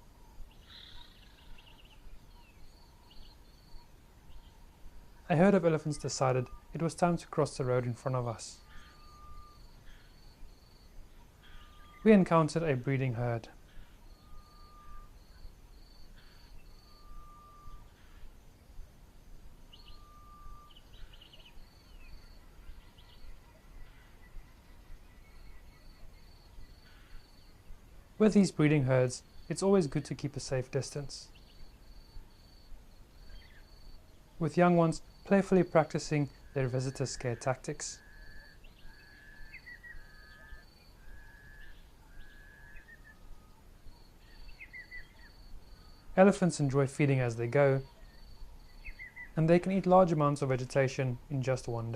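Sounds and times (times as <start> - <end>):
gliding bird chirps: 8.6 - 10.4
bird long whistle: 8.7 - 9.8, 13.8 - 18.3, 19.7 - 22.2, 38.0 - 43.7
bird whistled note: 8.8 - 9.6, 14.2 - 15.2, 16.9 - 17.9, 19.9 - 20.9
insect short high buzzes: 13.7 - 18.4.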